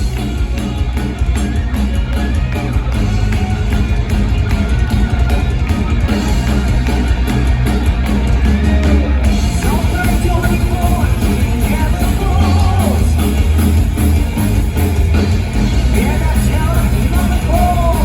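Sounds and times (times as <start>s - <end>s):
gliding lead melody: 0.0s - 18.0s
rock band playing live: 0.0s - 18.0s.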